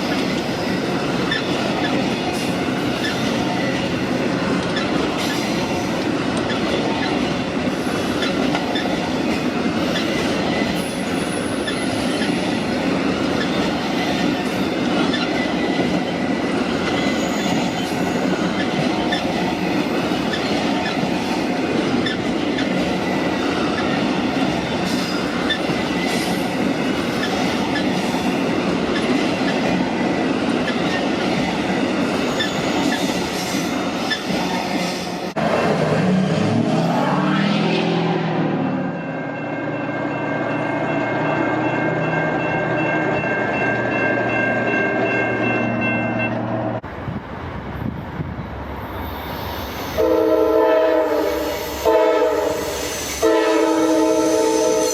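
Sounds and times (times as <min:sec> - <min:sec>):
train rolling on rails: 0:00.0 - 0:54.9
high-pitched wheel squeals: 0:16.9 - 0:19.3.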